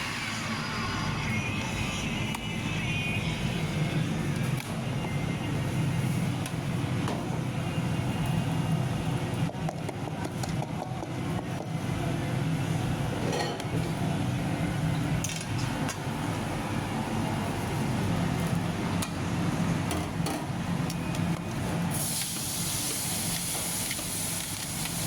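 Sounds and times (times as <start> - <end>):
low rumbling kitchen cooking noise: 0.0 - 25.0.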